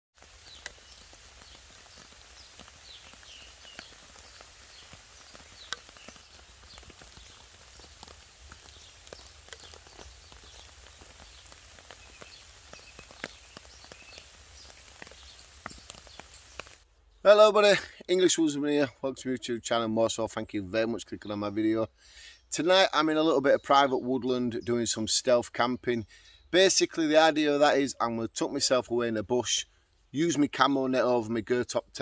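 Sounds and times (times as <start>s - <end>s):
soft hiss: 0.2s - 17.2s
small birds chirping: 0.2s - 17.3s, 19.6s - 26.7s.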